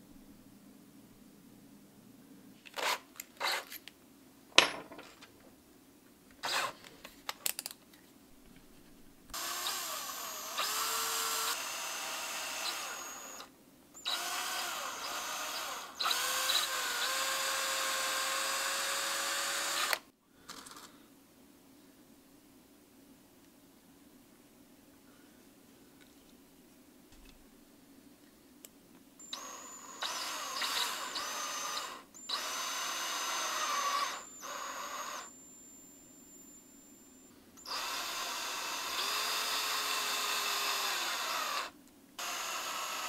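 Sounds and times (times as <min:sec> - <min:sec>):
power drill boring into wood: 0:02.8 - 0:03.6, 0:06.4 - 0:06.8, 0:09.4 - 0:20.0, 0:29.2 - 0:35.4, 0:37.6 - 0:43.0.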